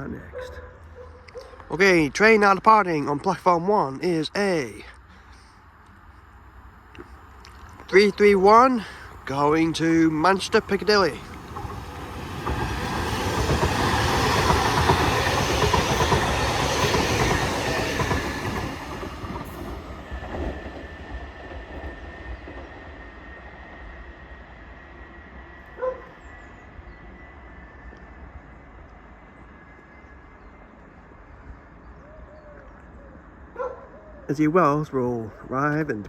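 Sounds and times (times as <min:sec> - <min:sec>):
electric train pulling away: 0:07.8 - 0:31.4.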